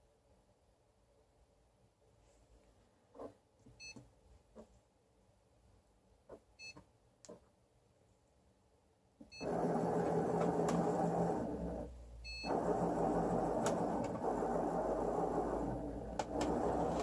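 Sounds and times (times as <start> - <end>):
motor mechanism whirring: 9.4 - 17.0.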